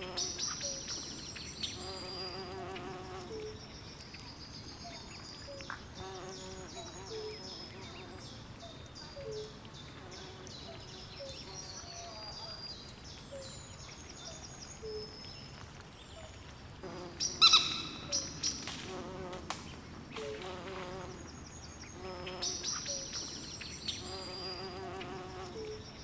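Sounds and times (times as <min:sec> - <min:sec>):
insects buzzing: 0:00.0 - 0:03.8, 0:05.7 - 0:08.3, 0:16.8 - 0:26.0
birds chirping: 0:00.0 - 0:26.0.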